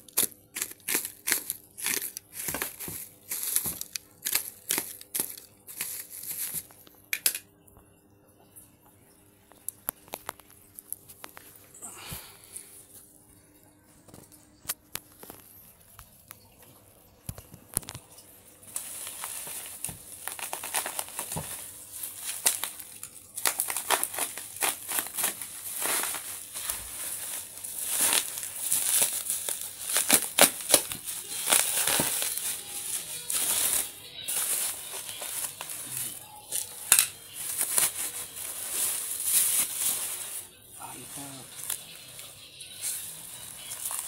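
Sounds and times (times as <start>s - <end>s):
wrapping tearing: 0.0s - 6.8s, 18.7s - 44.0s
wrapping crinkling: 0.0s - 7.0s, 9.5s - 13.2s, 14.1s - 44.0s
packaging clicks and rustles: 0.0s - 7.4s, 9.7s - 11.6s, 14.1s - 16.6s, 18.7s - 40.5s, 41.2s - 44.0s.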